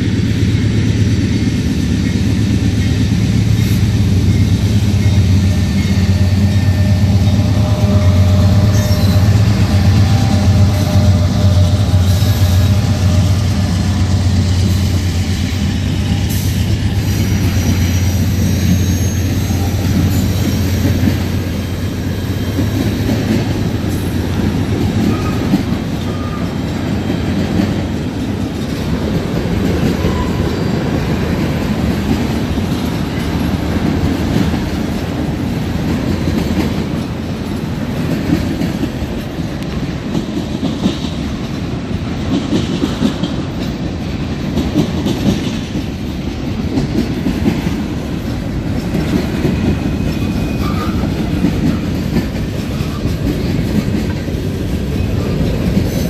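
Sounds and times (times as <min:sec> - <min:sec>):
diesel locomotives droning: 0:00.0 - 0:56.0
train cars rumbling and clattering: 0:00.0 - 0:56.0.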